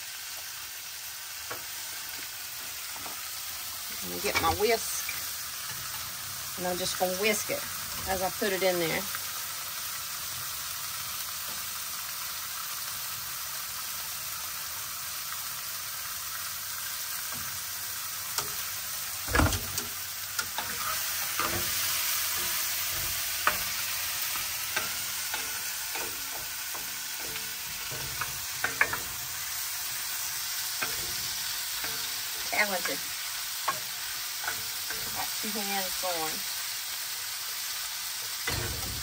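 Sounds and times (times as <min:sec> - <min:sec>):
shrimp sizzling in grease: 0:00.0 - 0:39.0
utensils knocking on cookware: 0:19.3 - 0:29.4, 0:30.8 - 0:33.0, 0:38.4 - 0:39.0.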